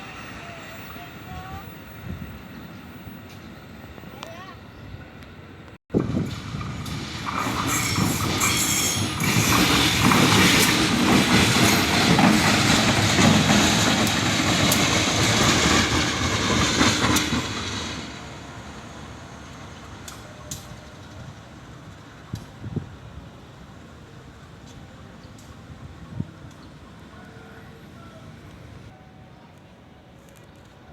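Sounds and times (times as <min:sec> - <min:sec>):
train wheels clattering on track: 0:06.0 - 0:18.3.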